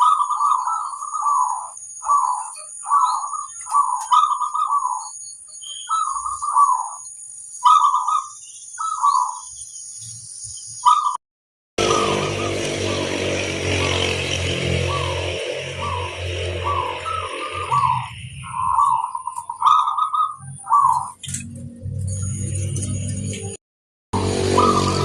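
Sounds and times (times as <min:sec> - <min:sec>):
dove cooing: 0:00.0 - 0:05.1, 0:05.9 - 0:07.0, 0:07.6 - 0:09.4, 0:11.8 - 0:21.3, 0:24.2 - 0:25.0.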